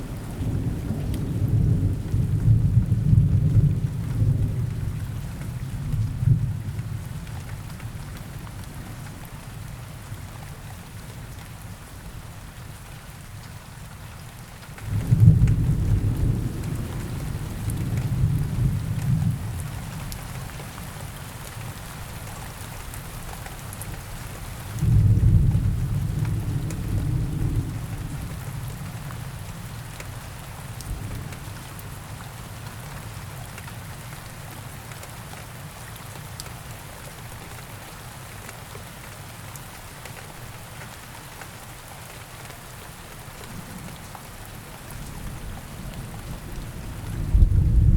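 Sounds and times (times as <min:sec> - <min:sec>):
steady rain in forest: 0:00.0 - 0:47.9
thunder rolling: 0:46.4 - 0:47.9.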